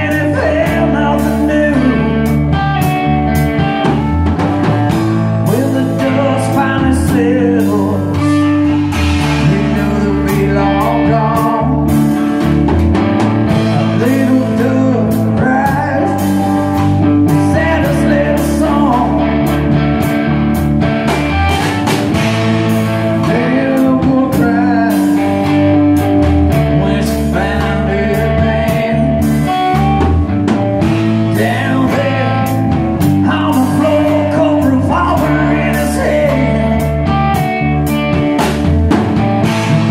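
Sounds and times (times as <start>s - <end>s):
person singing: 0.0s - 3.8s, 5.4s - 12.6s, 13.5s - 19.8s, 22.7s - 30.2s, 31.2s - 37.9s
drum kit: 0.0s - 39.9s
electric guitar: 0.0s - 39.9s.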